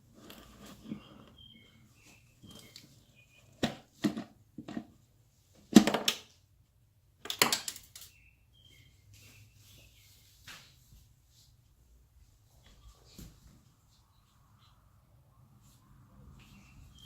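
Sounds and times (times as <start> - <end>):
plastic parts clunking and clattering: 3.5 - 5.0, 5.6 - 6.3, 7.2 - 8.1.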